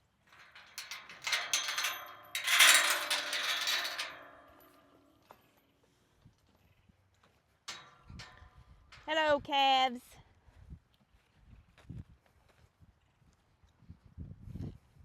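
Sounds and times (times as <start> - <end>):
metal clattering and rattling: 0.3 - 4.9, 7.7 - 9.4.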